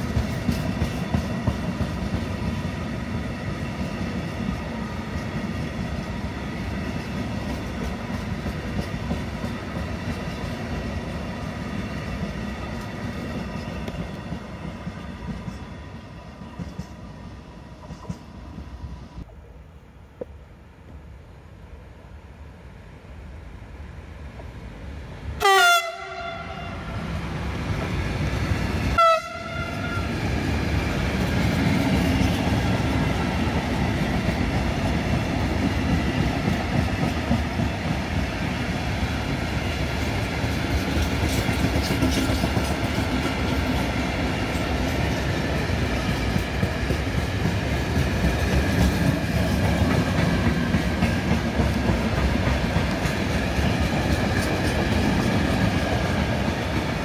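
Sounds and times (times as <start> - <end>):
train rolling past: 0.0 - 19.3, 20.2 - 57.0
locomotive horn blasts: 25.4 - 26.8, 29.0 - 30.1.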